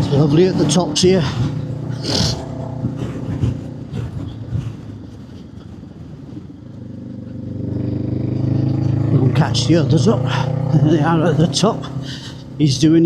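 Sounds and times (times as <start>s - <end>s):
wind noise: 0.0s - 10.4s
motorcycle engine running: 0.0s - 13.0s.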